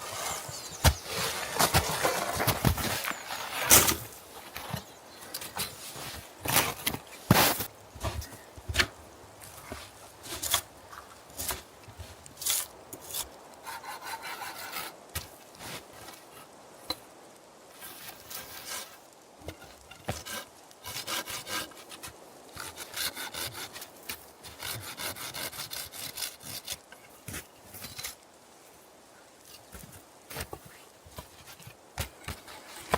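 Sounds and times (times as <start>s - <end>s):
hand saw cutting wood: 12.5s - 15.0s, 20.0s - 26.8s.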